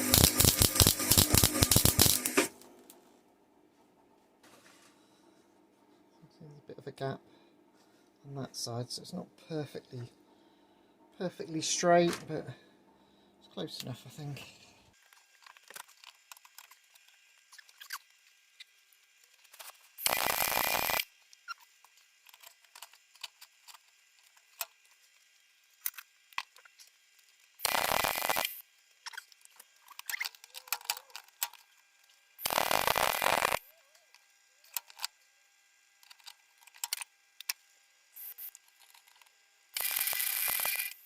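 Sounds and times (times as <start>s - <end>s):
welder crackling: 0.0s - 2.9s, 20.0s - 21.1s, 27.6s - 29.4s, 32.4s - 33.7s.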